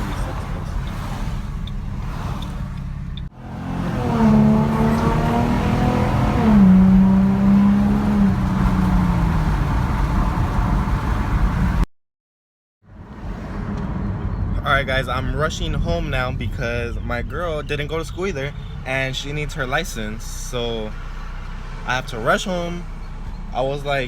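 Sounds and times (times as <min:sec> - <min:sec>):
car engine accelerating: 0:00.0 - 0:11.9
road noise: 0:00.0 - 0:11.9, 0:12.8 - 0:24.0.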